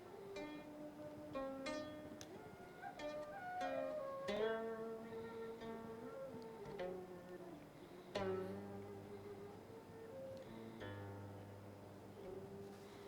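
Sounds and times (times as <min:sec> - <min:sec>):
plucked zither notes: 0:00.0 - 0:05.0.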